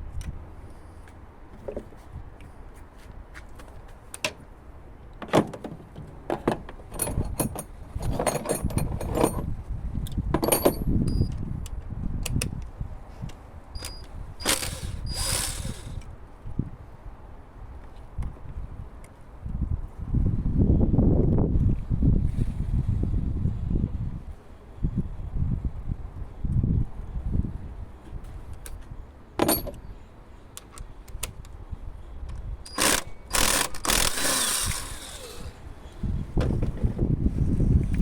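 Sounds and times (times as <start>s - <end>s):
metal tools clinking and rattling: 6.9s - 9.4s.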